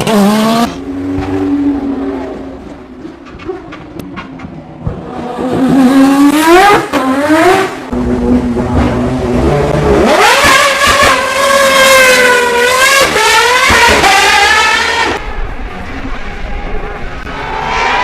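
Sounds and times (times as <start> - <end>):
race car engine accelerating: 4.9 - 15.2.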